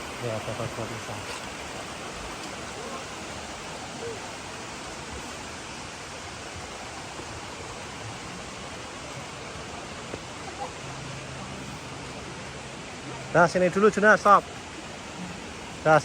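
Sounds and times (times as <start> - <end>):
flowing water rushing: 0.0 - 16.0.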